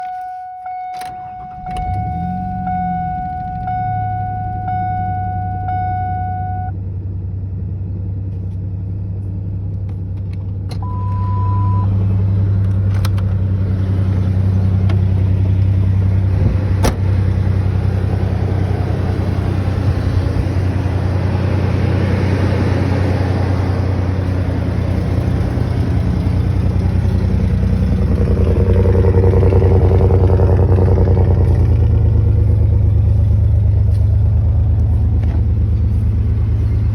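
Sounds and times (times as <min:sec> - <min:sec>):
short beep: 0:00.0 - 0:06.8, 0:10.8 - 0:12.0
pickup engine running: 0:00.0 - 0:36.9.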